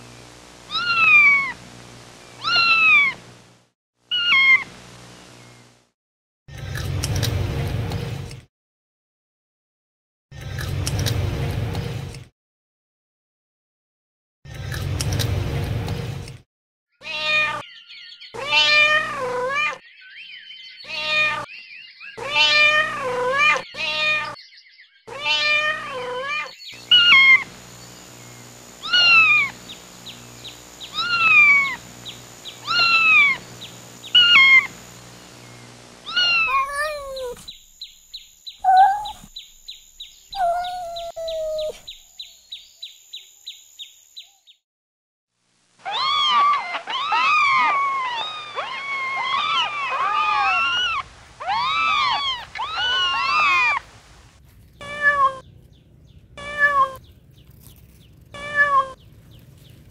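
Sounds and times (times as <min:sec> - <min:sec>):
kittens meowing: 0:00.7 - 0:01.6, 0:02.4 - 0:03.2, 0:04.1 - 0:04.7, 0:17.0 - 0:17.6, 0:18.4 - 0:19.8, 0:20.8 - 0:21.5, 0:22.2 - 0:24.4, 0:25.1 - 0:27.5, 0:28.8 - 0:29.6, 0:30.9 - 0:31.8, 0:32.6 - 0:33.4, 0:34.2 - 0:34.7, 0:36.1 - 0:37.5, 0:38.6 - 0:39.3, 0:40.3 - 0:41.9, 0:45.9 - 0:53.8, 0:54.8 - 0:55.5, 0:56.4 - 0:57.0, 0:58.3 - 0:59.0.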